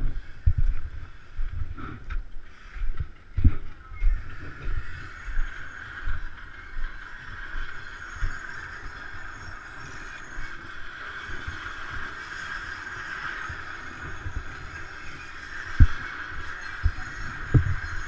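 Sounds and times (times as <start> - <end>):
low thumps on microphone: 0.0 - 4.8.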